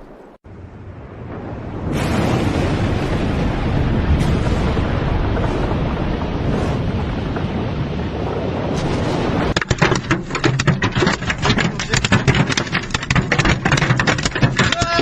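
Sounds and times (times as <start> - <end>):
hail and rain pelting: 2.0 - 15.0
sharp hail knocks: 8.8 - 15.0.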